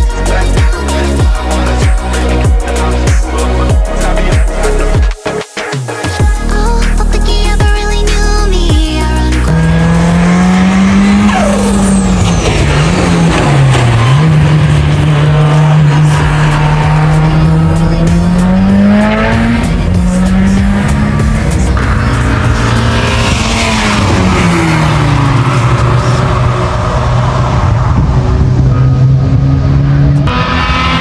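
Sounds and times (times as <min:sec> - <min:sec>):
car engine at high revs: 0:09.3 - 0:31.0.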